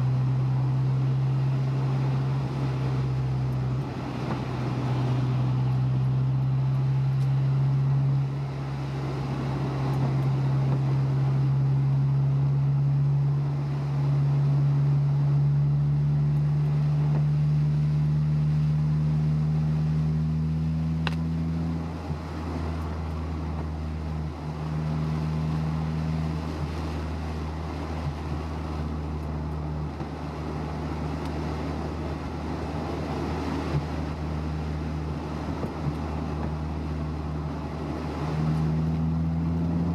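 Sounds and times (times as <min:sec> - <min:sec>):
car engine hum: 0:00.0 - 0:39.9
road noise: 0:00.0 - 0:39.9
faint tick: 0:21.0 - 0:21.2.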